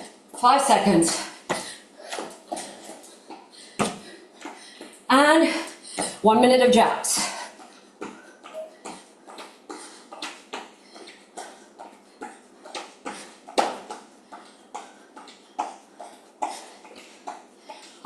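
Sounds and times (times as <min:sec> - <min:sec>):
shoes landing on floor: 0:03.8 - 0:04.1.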